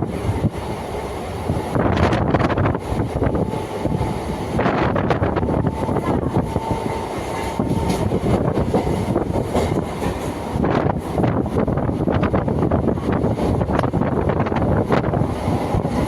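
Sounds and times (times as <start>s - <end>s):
train rumbling and clattering: 0.0s - 16.0s.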